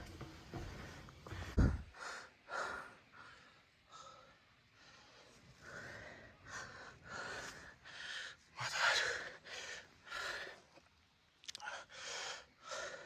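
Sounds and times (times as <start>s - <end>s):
person breathing hard: 1.2s - 10.7s.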